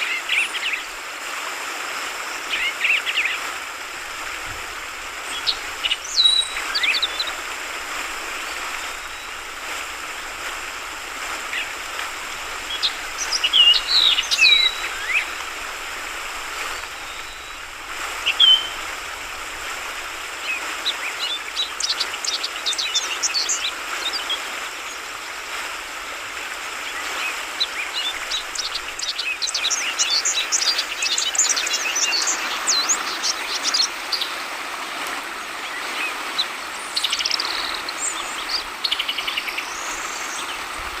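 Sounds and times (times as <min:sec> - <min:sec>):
flowing water hiss: 0:00.0 - 0:41.0
bulbul calling: 0:02.5 - 0:23.7
rapid high twittering: 0:03.6 - 0:23.7.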